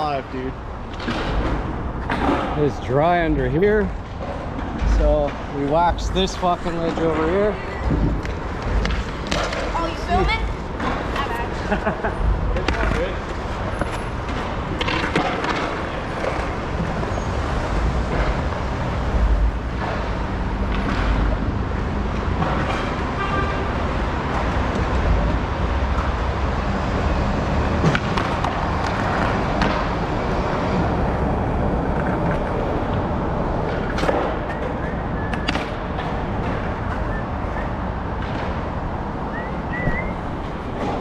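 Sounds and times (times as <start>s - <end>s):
skateboard wheels rolling on concrete: 0.0s - 41.0s
skateboard clacks: 6.7s - 11.2s, 12.6s - 26.2s, 27.6s - 41.0s.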